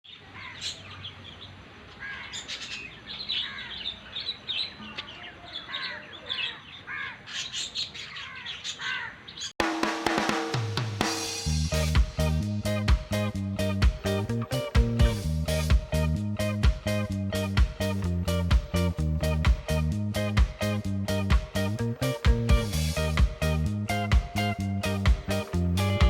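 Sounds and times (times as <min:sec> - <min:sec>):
small birds chirping: 0:00.0 - 0:09.6
music with drums bass and guitar: 0:09.6 - 0:26.0.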